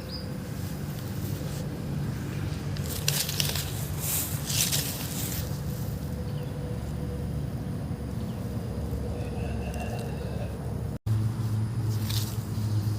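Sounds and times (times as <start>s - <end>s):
grass swishing under cutter: 0.4s - 6.2s, 11.1s - 12.9s.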